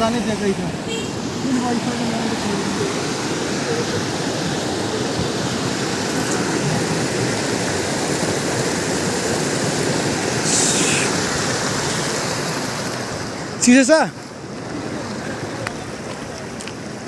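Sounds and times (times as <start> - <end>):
waterfall rushing: 0.0 - 17.0
sharp hiss: 10.4 - 11.3.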